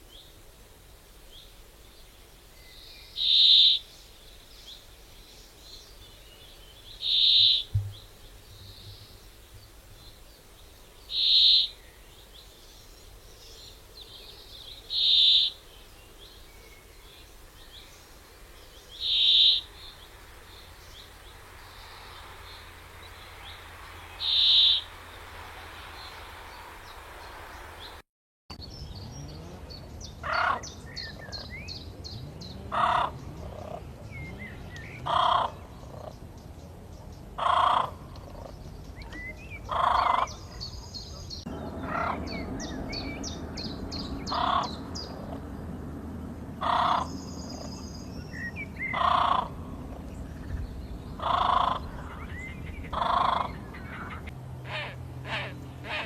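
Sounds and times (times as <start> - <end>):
small birds chirping: 1.3 - 54.3
loud bird call: 7.0 - 7.7, 11.1 - 11.8, 14.9 - 15.6, 19.0 - 19.9, 22.2 - 27.3, 39.6 - 45.4.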